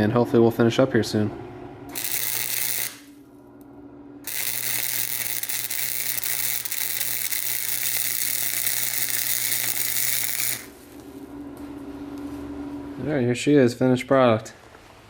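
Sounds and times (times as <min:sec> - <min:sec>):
low steady hum: 0:00.0 - 0:15.0
welding arc crackling: 0:01.9 - 0:03.2, 0:04.2 - 0:11.1.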